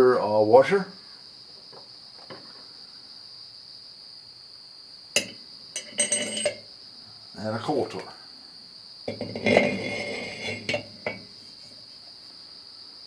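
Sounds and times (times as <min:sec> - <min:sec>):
metal parts clinking: 0:05.2 - 0:06.6
ringing metal clatter: 0:05.2 - 0:06.6, 0:09.1 - 0:11.3.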